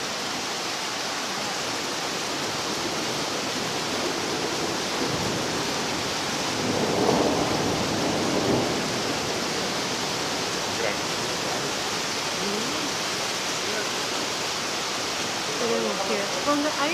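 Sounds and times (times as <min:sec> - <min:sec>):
rain hissing: 0:00.0 - 0:16.9
thunder rumbling: 0:02.4 - 0:16.9.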